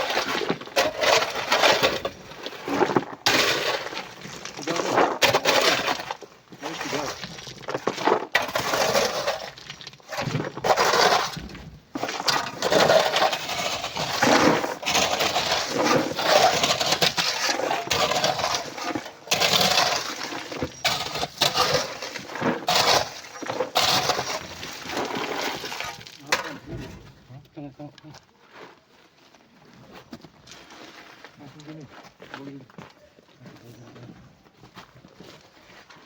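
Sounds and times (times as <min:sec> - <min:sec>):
rock and sand clattering into truck: 0:00.0 - 0:27.2.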